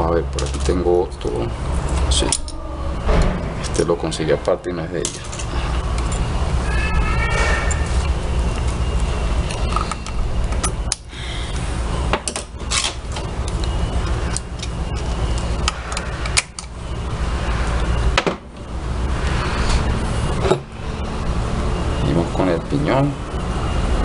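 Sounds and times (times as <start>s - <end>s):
low mechanical rumble: 0.0s - 24.0s
metal parts clicking: 2.0s - 2.6s, 5.0s - 6.3s, 12.2s - 16.7s.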